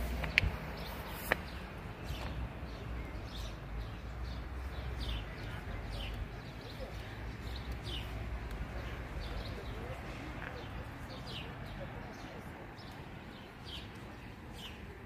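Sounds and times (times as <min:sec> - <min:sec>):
bird chirping: 0:00.1 - 0:08.2.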